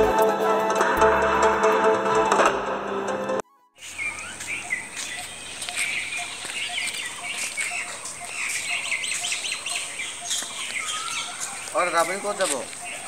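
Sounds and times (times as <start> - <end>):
birds chirping: 3.8 - 13.0.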